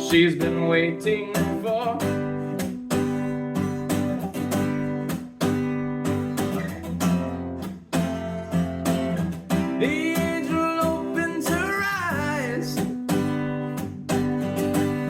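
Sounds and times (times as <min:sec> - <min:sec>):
person singing: 0:00.0 - 0:02.4, 0:09.6 - 0:13.0
acoustic guitar strumming: 0:00.0 - 0:15.0.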